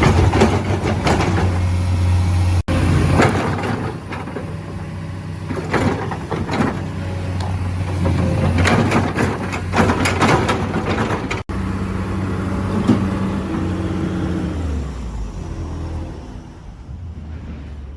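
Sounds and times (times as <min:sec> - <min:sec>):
knocks and rattles: 0:00.0 - 0:01.8, 0:05.5 - 0:11.4
construction machine engine running: 0:00.0 - 0:17.0.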